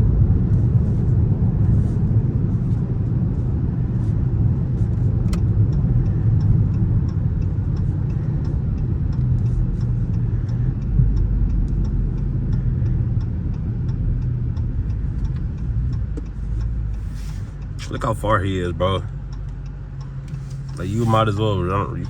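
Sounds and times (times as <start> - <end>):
car engine running: 0.0 - 22.0
road rumble: 0.0 - 22.0
faint ticking: 5.3 - 22.0.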